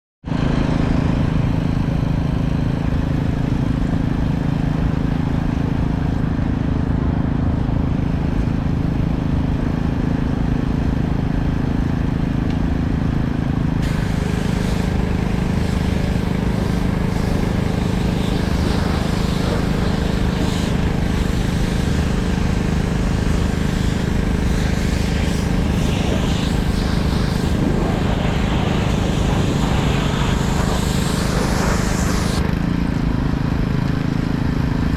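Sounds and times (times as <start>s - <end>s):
engine running steadily: 0.3s - 34.9s
water spray hiss: 13.8s - 32.5s.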